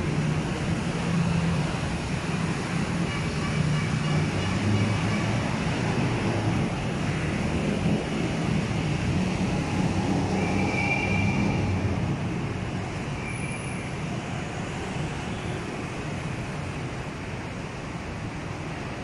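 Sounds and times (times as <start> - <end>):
train rumbling past: 0.0 - 14.8
high squeal: 10.3 - 11.8.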